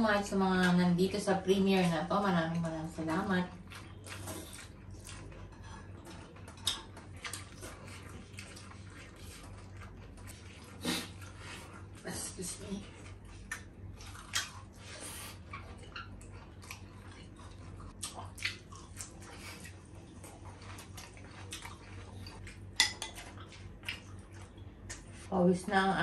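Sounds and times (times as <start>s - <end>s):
steady low hum: 0.0s - 26.0s
chewing and mouth smacks: 3.6s - 12.0s, 12.9s - 25.3s.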